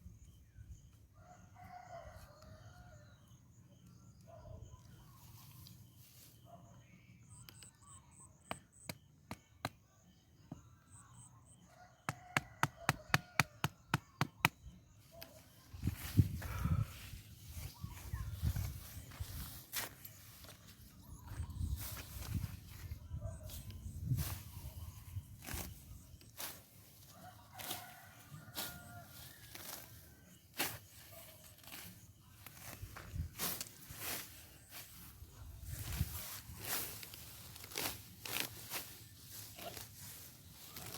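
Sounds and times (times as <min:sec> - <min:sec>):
faint high chirping: 0:00.0 - 0:12.9
rooster crowing faintly: 0:27.1 - 0:29.8
sharp rustling scrapes: 0:35.8 - 0:40.9.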